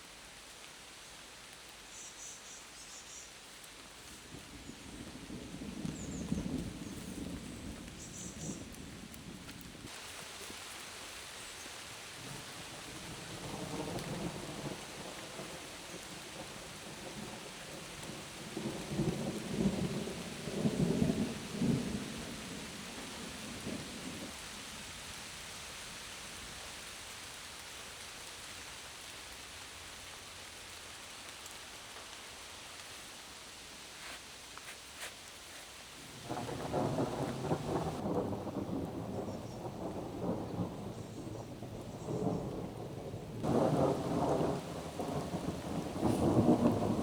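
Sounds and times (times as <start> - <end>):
heavy rain pouring: 3.4 - 47.0
thunder rumbling: 4.4 - 9.9, 36.1 - 47.0.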